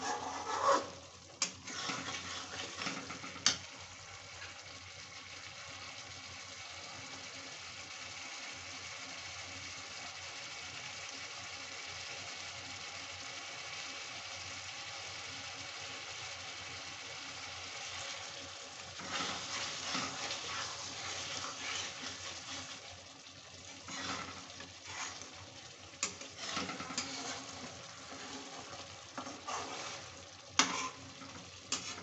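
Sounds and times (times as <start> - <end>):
metal spatula scraping pan: 0.0 - 3.6, 18.9 - 22.9, 23.7 - 32.0
curry sizzling in a pan: 0.0 - 32.0.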